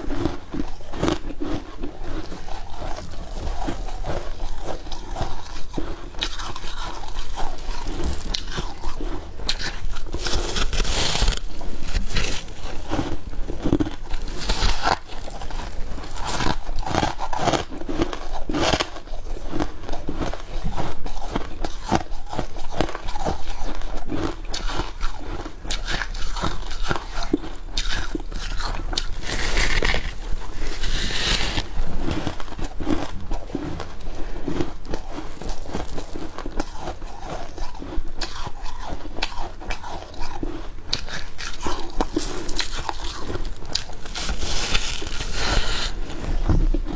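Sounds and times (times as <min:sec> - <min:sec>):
crisp crunching of frost: 0:09.7 - 0:13.1, 0:28.6 - 0:31.7, 0:35.1 - 0:36.8, 0:42.1 - 0:46.9.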